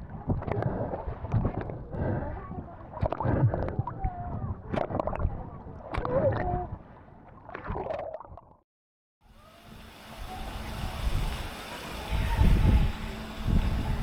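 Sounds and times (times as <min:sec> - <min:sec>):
water sloshing and gurgling: 0:00.0 - 0:08.6
wind noise on microphone: 0:10.2 - 0:14.0.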